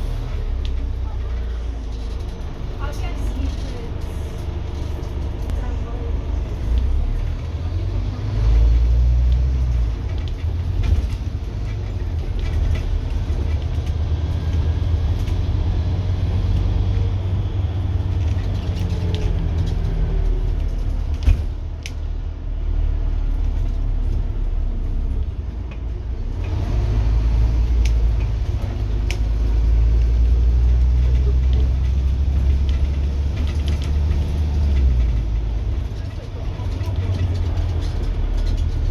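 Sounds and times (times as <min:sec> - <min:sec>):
light rattles: 0:00.0 - 0:07.5
bus diesel engine droning: 0:00.0 - 0:38.9.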